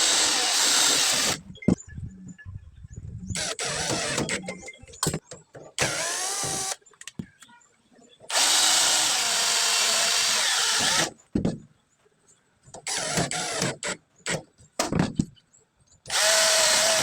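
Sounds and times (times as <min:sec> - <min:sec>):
power drill running: 0:00.0 - 0:01.4, 0:08.3 - 0:11.1, 0:16.1 - 0:17.0.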